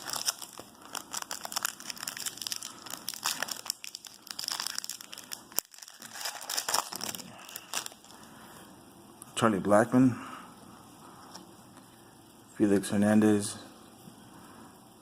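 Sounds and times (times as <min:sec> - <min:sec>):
cards and foil pack crinkling: 0:00.0 - 0:08.2.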